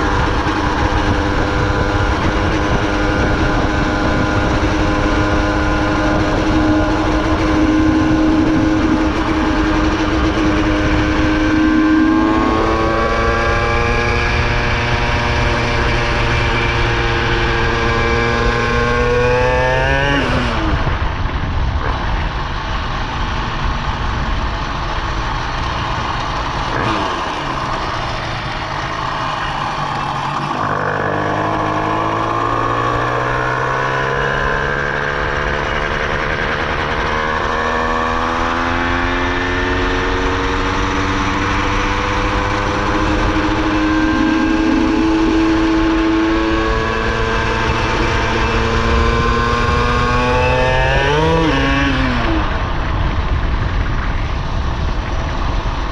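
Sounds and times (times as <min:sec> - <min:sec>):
two-stroke engine running: 0:23.5 - 0:38.6.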